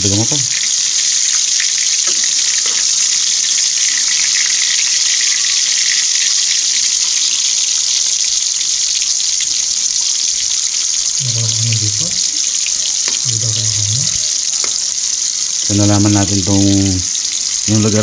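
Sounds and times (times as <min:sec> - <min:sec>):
food sizzling in oil: 0:00.0 - 0:18.0
faint crackles: 0:10.8 - 0:18.0.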